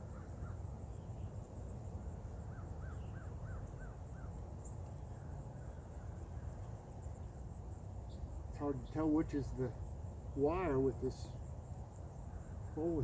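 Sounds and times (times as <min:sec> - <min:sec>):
bird calling: 0:02.4 - 0:04.3, 0:12.1 - 0:13.0.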